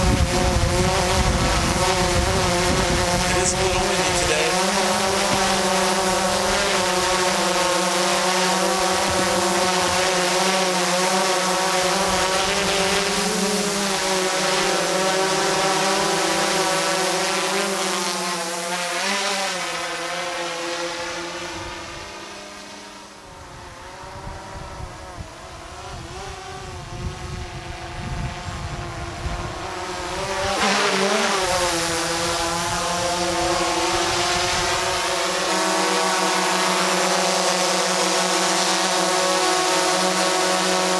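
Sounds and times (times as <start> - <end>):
wind rumbling on microphone: 0.0 - 4.2
drone propellers buzzing: 0.6 - 10.2.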